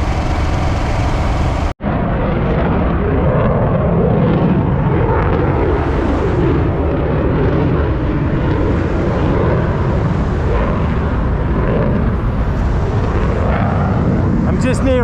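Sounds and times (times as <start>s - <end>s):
motorcycle engine running: 0.0s - 1.8s
wind rush on microphone: 0.0s - 15.0s.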